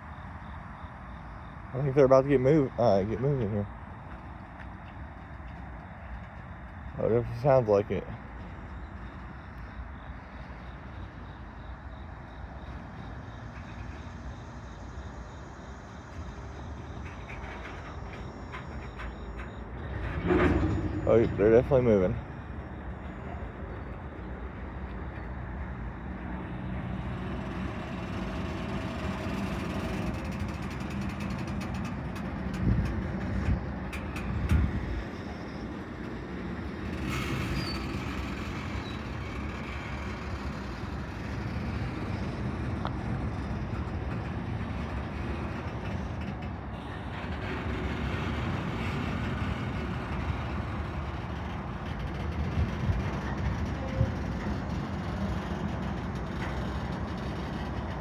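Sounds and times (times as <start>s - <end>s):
diesel locomotive engines running: 0.0s - 58.0s
moving railcars: 0.0s - 58.0s
railcar knocks: 16.9s - 41.9s.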